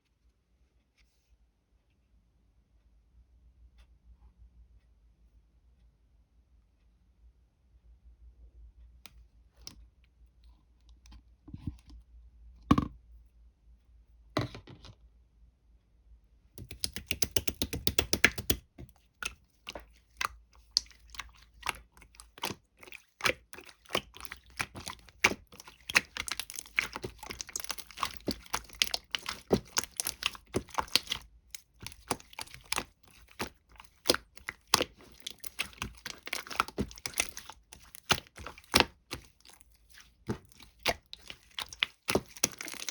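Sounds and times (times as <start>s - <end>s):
slime squishing with sticky clicks: 16.6s - 42.9s.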